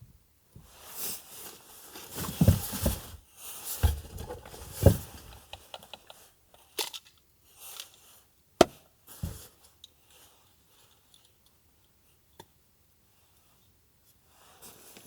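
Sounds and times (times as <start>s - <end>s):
rustling and crinkling: 0.6s - 6.3s, 9.1s - 11.0s
soft knocks: 8.6s - 9.5s.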